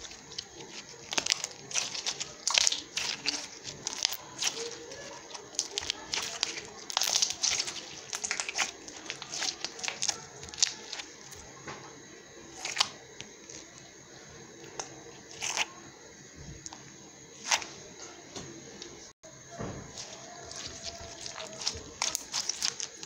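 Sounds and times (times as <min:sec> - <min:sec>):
slime crackling and popping: 0:00.0 - 0:11.6, 0:12.5 - 0:13.9, 0:14.6 - 0:15.7, 0:19.9 - 0:23.0.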